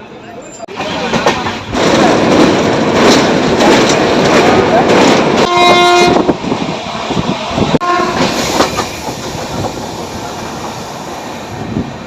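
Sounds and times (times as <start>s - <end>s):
train rumbling on rails: 0.0s - 12.0s
locomotive horn: 5.4s - 6.3s, 7.8s - 8.3s.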